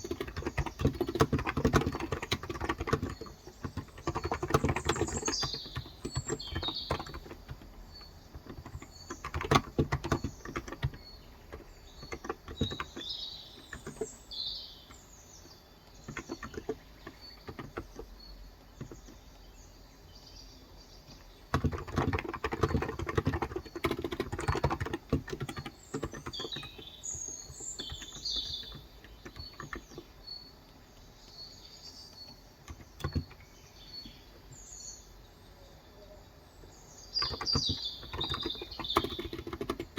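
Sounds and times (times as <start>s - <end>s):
keyboard typing: 0.0s - 14.2s, 14.9s - 19.2s, 21.1s - 30.4s, 32.1s - 33.5s, 37.2s - 39.9s
small birds chirping: 0.0s - 39.9s.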